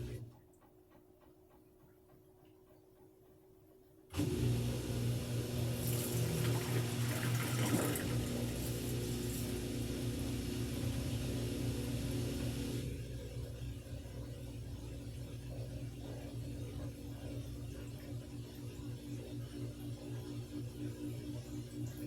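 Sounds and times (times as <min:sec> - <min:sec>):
washing machine running: 0:00.0 - 0:03.4, 0:04.0 - 0:22.0.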